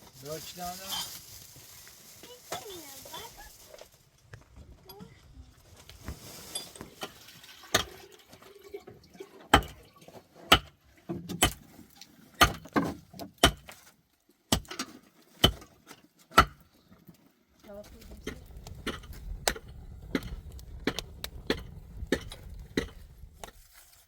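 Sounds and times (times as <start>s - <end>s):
hand tool striking heavy blows: 12.4s - 13.7s, 14.5s - 15.7s, 16.3s - 16.6s, 18.2s - 23.6s.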